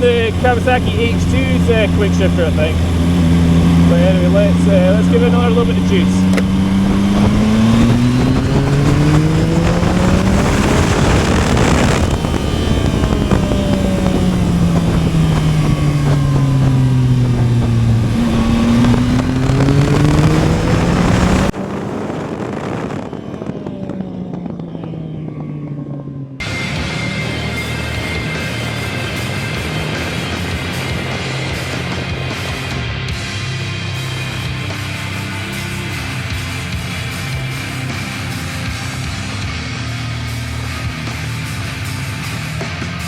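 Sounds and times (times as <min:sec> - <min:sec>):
wind noise on microphone: 0:00.0 - 0:24.7
motorcycle engine accelerating: 0:00.0 - 0:43.0.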